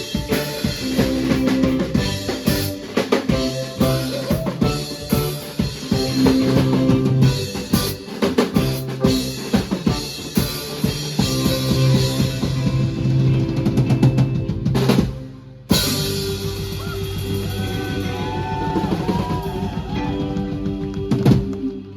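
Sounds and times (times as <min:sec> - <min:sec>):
drum kit: 0:00.0 - 0:21.9
rock band playing: 0:00.0 - 0:21.9.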